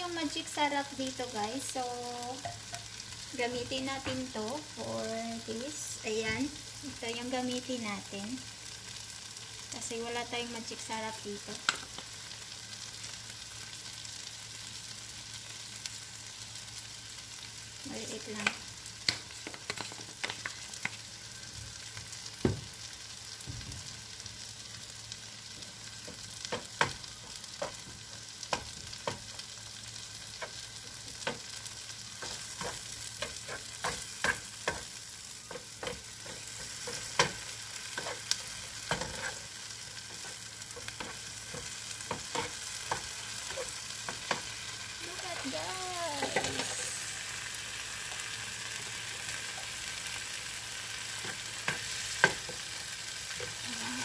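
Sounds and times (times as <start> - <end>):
food sizzling in a frying pan: 0.0 - 54.0
spoon scraping a pan: 32.2 - 44.6.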